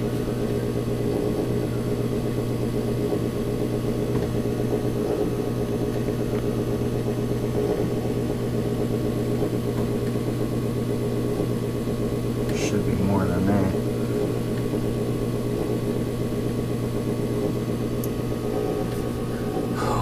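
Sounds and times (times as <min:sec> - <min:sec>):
furnace fan motor hum: 0:00.0 - 0:20.0.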